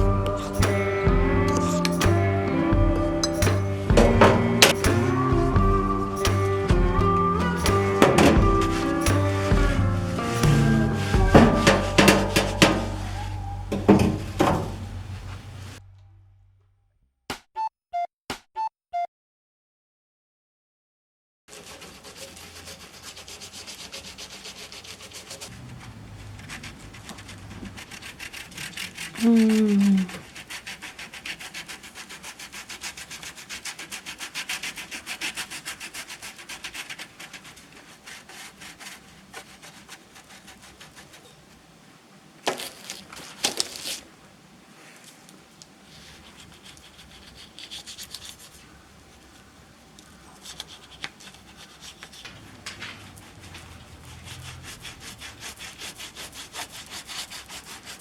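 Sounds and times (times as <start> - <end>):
brisk scrubbing: 0.0 - 15.8, 21.5 - 41.6, 44.7 - 58.0
falling squeal: 0.0 - 15.8.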